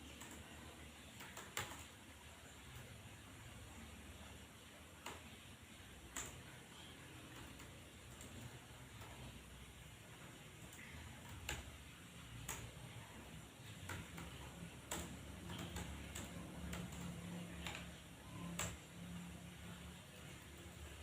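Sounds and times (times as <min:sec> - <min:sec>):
low steady hum: 0:00.0 - 0:21.0
keyboard keys clicking: 0:00.1 - 0:02.0, 0:13.7 - 0:18.8.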